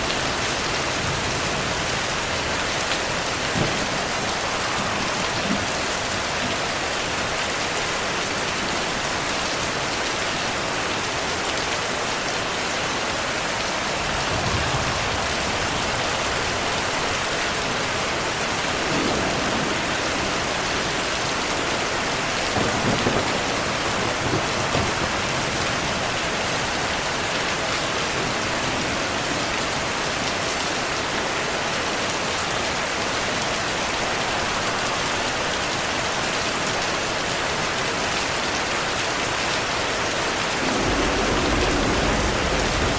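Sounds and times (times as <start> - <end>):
heavy rain falling: 0.0 - 42.9
distant thunder rumbling: 0.1 - 7.2, 13.8 - 26.4, 40.4 - 42.9.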